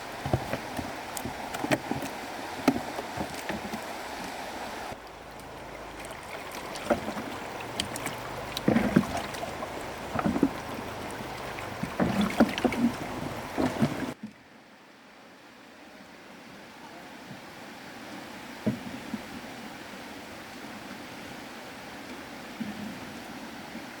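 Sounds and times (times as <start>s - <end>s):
rushing water: 0.0s - 14.2s, 16.0s - 24.0s
water splashing: 0.0s - 14.2s
knocks and thuds: 5.9s - 14.2s.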